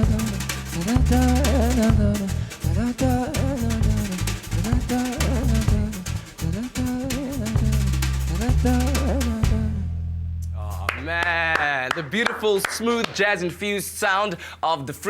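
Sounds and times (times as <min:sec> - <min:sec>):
deep bass line: 0:00.0 - 0:11.1
drum kit hits and rimshots: 0:00.0 - 0:11.1.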